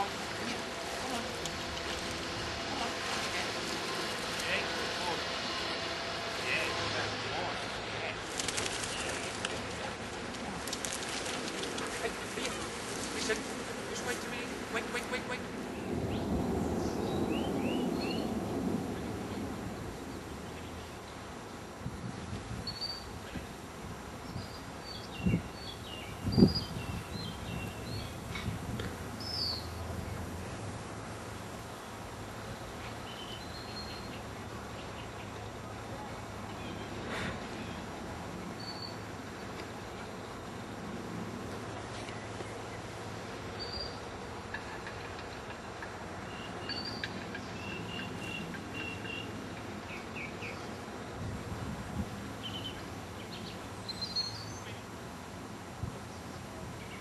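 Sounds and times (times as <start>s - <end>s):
steady background noise: 0.0s - 57.0s
songbird chirping: 46.2s - 50.8s.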